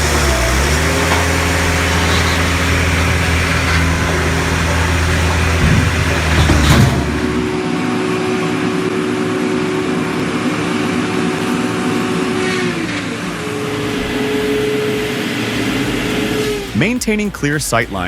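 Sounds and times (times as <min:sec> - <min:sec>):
engine-driven machine running: 0:00.0 - 0:18.0.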